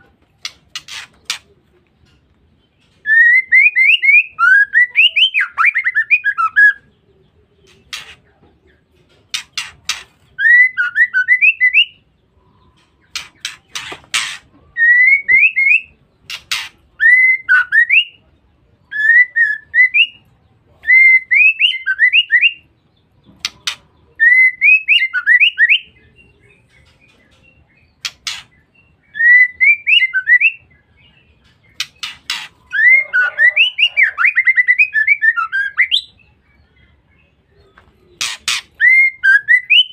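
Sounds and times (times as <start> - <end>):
bird whistled calls: 31.8 - 36.2, 38.2 - 39.9.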